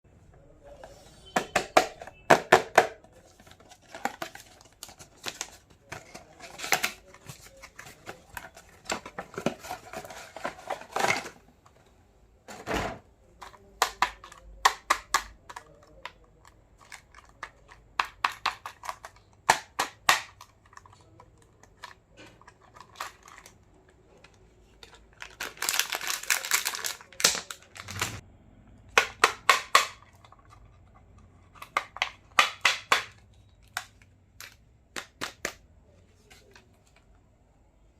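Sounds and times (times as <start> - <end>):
plastic pieces clicking and tapping: 13.4 - 23.6, 28.9 - 35.6
plastic packaging crinkling: 22.4 - 28.2.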